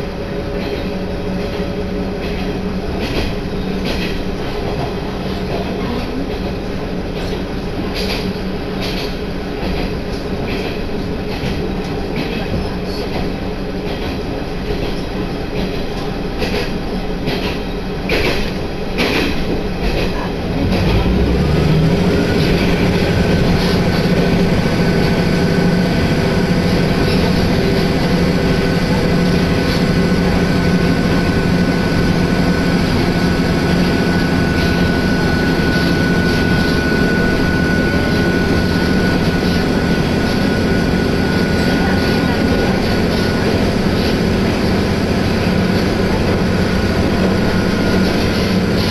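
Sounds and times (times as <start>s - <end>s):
railcar rumble and engine hum: 0.0s - 48.9s
steady whine: 21.1s - 48.9s.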